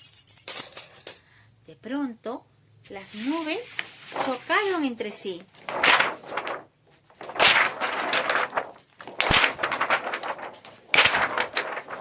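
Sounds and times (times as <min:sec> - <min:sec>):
plastic film crackling: 0:03.6 - 0:12.0.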